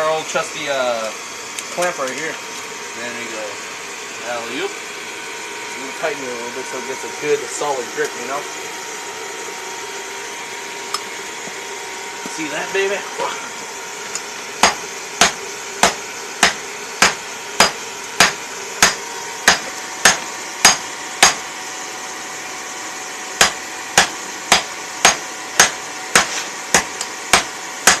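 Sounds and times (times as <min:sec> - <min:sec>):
hammer striking steel: 0:14.6 - 0:21.4, 0:23.4 - 0:28.0.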